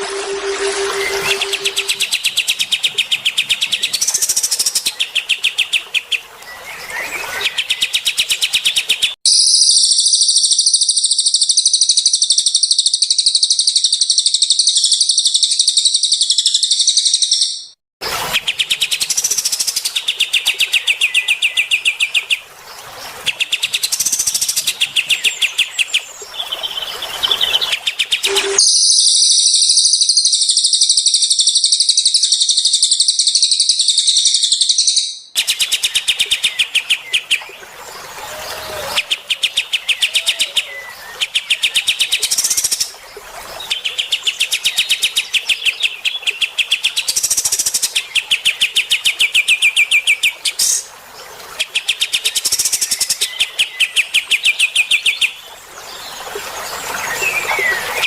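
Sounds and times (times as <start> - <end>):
dense high bird trill: 0.0 - 2.1, 28.2 - 32.7.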